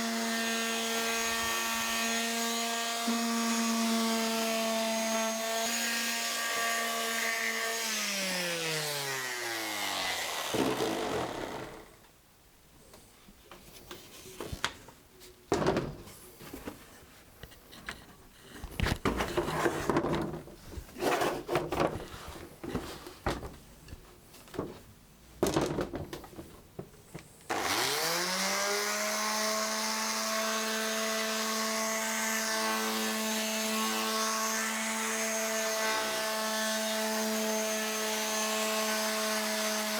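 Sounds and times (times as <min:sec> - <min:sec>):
electric sander running: 0:00.0 - 0:11.9, 0:27.5 - 0:39.9.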